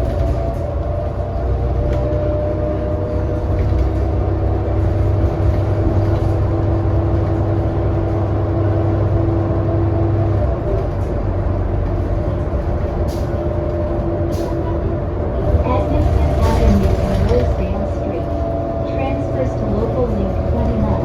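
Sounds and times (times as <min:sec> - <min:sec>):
bus engine drone: 0:00.0 - 0:21.0.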